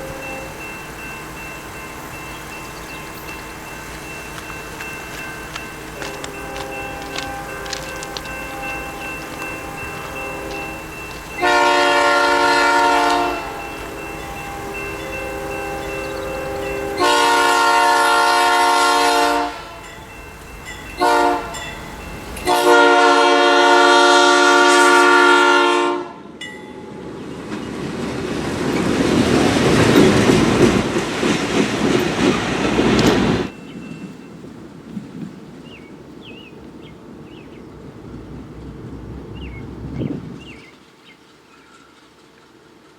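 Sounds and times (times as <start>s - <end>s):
locomotive air horn: 0.0s - 0.6s, 6.0s - 19.9s, 21.0s - 21.7s, 22.4s - 26.3s
train rumbling past on rails: 0.0s - 42.9s.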